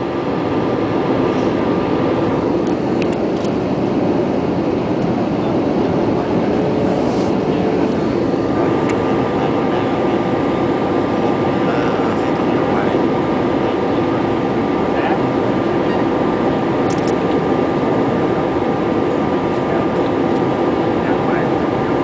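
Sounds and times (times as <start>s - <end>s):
jet engine and airflow roar: 0.0s - 22.0s.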